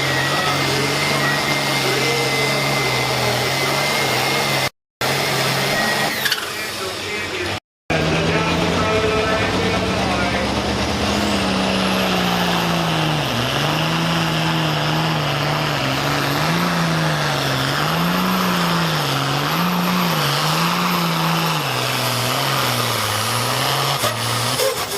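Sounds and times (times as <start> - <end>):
tractor engine running under load: 7.9 - 24.9.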